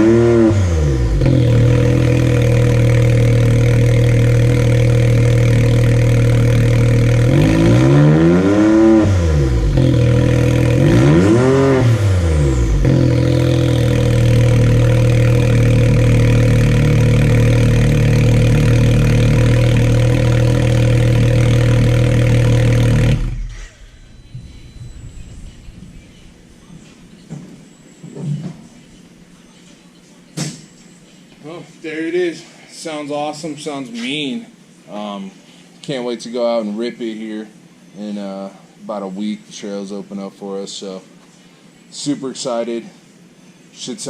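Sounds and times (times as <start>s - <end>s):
engine idling and revving: 0.0s - 26.3s.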